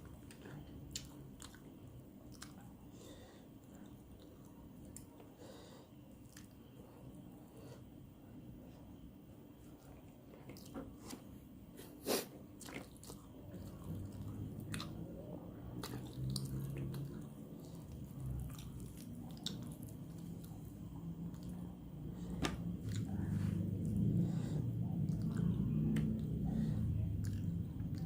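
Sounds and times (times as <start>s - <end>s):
close chewing and biting food: 12.6s - 28.0s
low hum: 13.4s - 28.0s.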